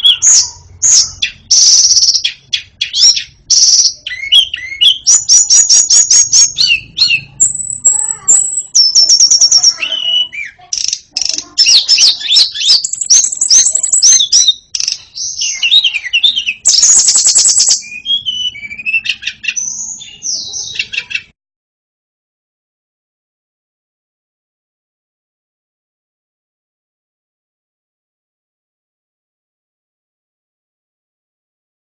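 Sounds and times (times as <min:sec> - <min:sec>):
bird singing: 0:00.0 - 0:21.3.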